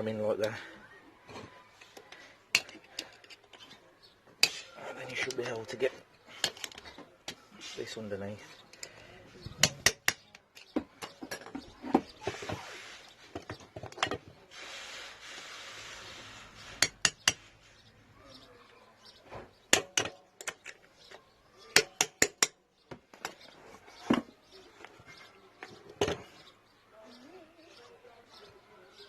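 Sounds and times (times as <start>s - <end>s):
rough scraping: 11.2s - 17.9s.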